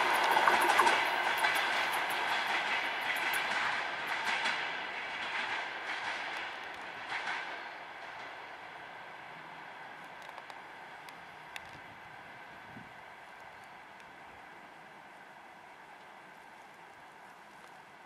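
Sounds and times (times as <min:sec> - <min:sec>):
train wheels clattering over rail joints: 0:01.0 - 0:08.6.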